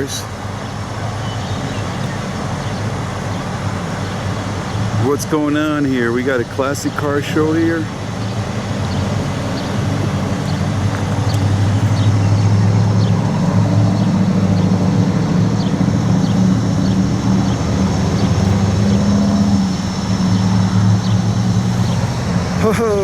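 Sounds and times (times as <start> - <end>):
vehicle engines humming: 0.0 - 23.0.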